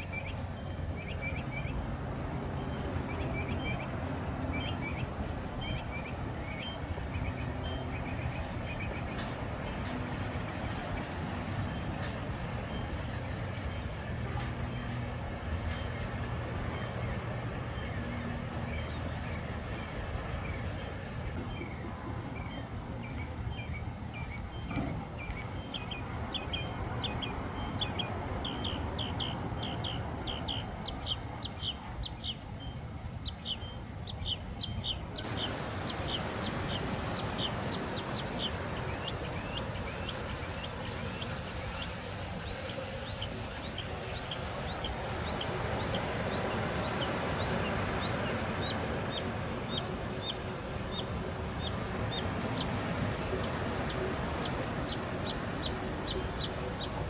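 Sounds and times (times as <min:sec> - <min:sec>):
small bird chirping: 0:23.6 - 0:57.0
background hiss: 0:35.2 - 0:57.0.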